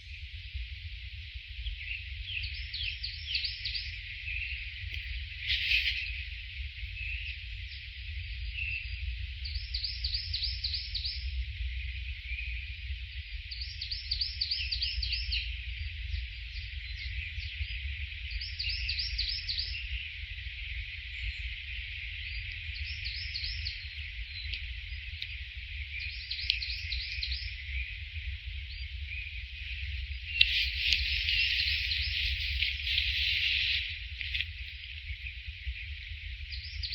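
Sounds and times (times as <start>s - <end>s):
songbird chirping: 1.8s - 6.2s, 21.0s - 36.9s
insects hissing: 3.9s - 6.5s, 29.5s - 36.8s.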